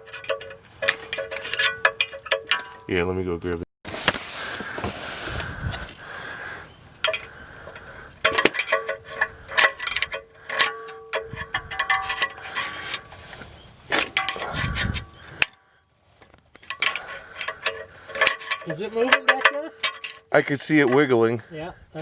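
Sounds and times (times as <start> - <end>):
metal hand tools clinking: 0.0 - 3.0, 7.0 - 13.1, 16.6 - 21.2.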